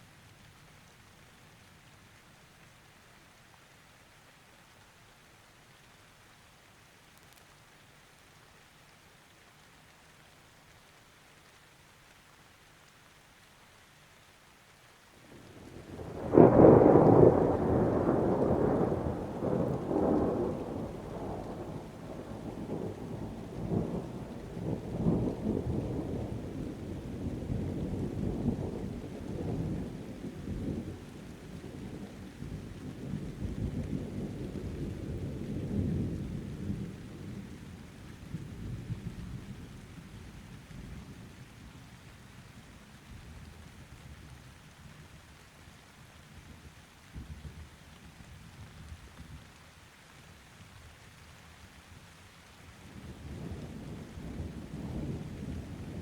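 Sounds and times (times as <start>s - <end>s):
rain falling: 0.0s - 56.0s
thunder rumbling: 15.3s - 41.3s, 52.9s - 56.0s.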